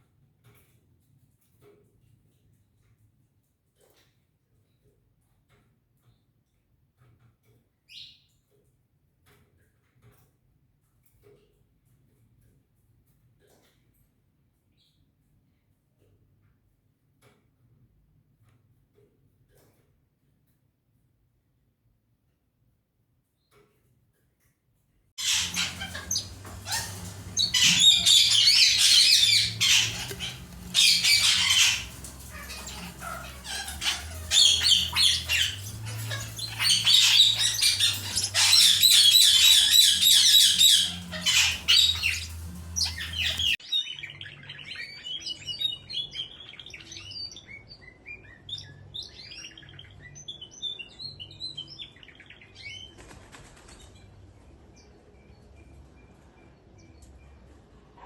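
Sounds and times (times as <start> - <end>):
bird squawks: 25.2 - 43.6
cage birds singing and chirping: 25.2 - 53.0.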